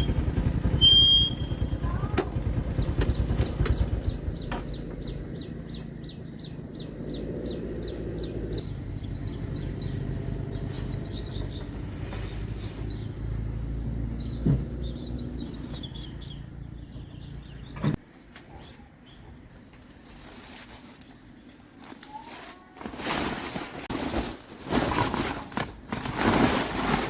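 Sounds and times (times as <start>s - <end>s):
engine knock: 0.0s - 6.1s
engine running: 0.0s - 18.0s
birds chirping: 0.0s - 20.3s.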